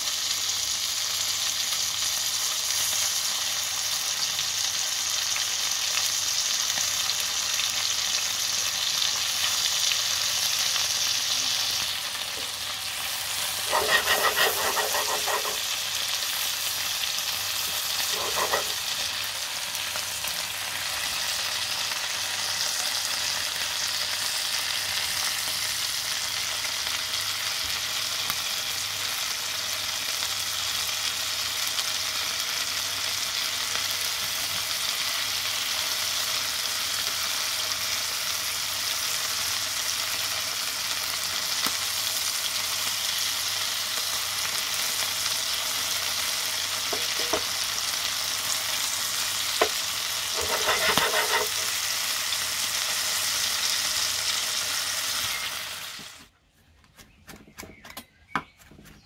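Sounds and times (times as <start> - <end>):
liver sizzling in oil: 0.0 - 56.3
tongs clattering against pan: 13.7 - 15.7, 18.0 - 18.8, 46.9 - 47.5, 49.6 - 51.7.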